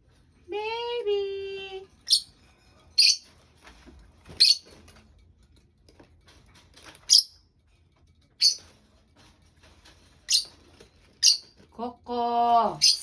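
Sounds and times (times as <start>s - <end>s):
birds chirping: 1.6s - 2.4s, 3.0s - 3.3s, 4.3s - 4.7s, 8.4s - 8.7s, 10.3s - 10.6s, 11.2s - 11.5s, 12.6s - 13.0s.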